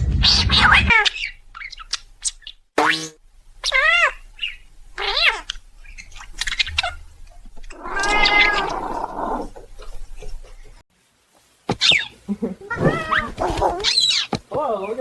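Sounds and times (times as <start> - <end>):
kitten meowing: 7.8 - 8.8.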